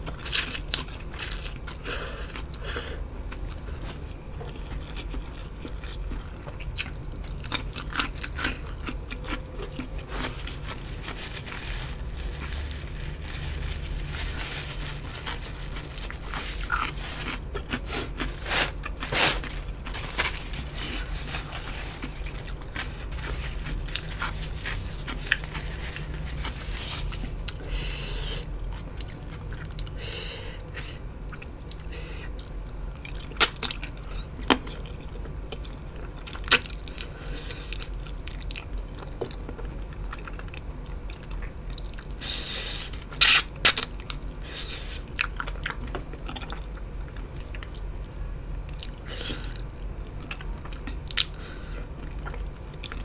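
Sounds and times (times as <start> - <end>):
person chewing crunchy food: 0.1 - 30.0, 48.7 - 53.0.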